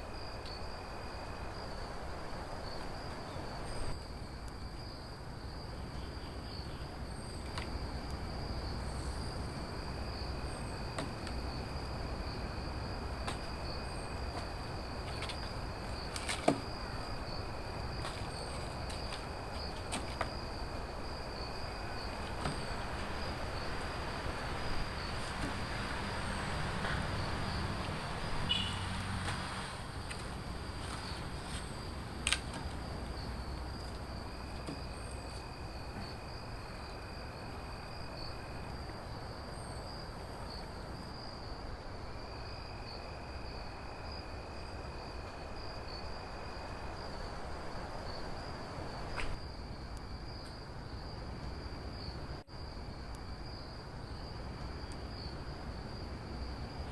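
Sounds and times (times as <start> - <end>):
high-pitched insect trill: 0.0 - 56.9.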